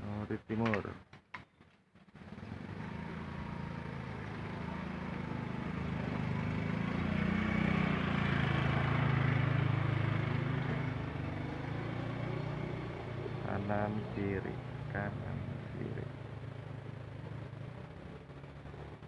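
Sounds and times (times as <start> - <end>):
vehicle engine passing by: 2.1 - 19.0.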